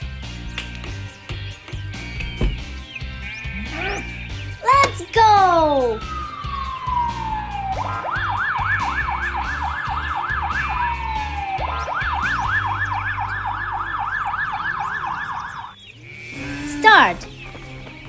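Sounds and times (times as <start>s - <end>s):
ambulance siren wailing and yelping: 3.4s - 15.9s.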